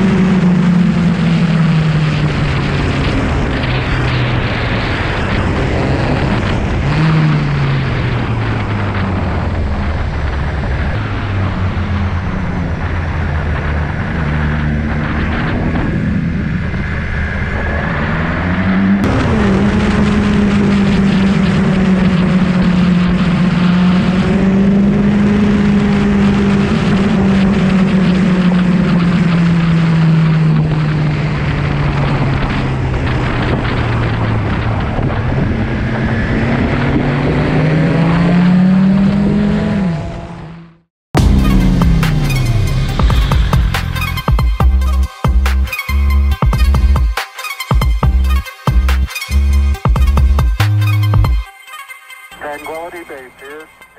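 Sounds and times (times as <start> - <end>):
motorcycle engine running: 18.8 - 45.7, 47.8 - 51.4.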